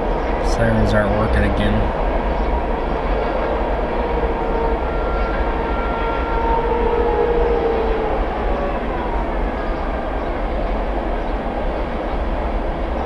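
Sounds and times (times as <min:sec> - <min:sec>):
train rumbling past: 0:00.0 - 0:13.0
faint fire siren wail: 0:02.6 - 0:13.0.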